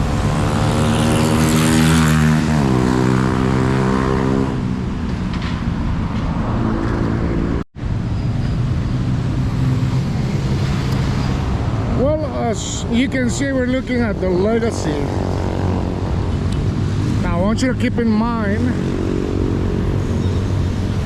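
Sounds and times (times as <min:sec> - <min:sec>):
vehicle engine hum passing: 0:00.0 - 0:12.0
road noise: 0:00.0 - 0:21.0.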